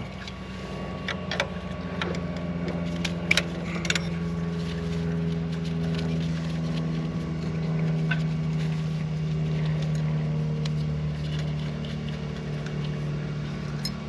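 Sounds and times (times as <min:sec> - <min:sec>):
machine drone: 0:00.0 - 0:14.0.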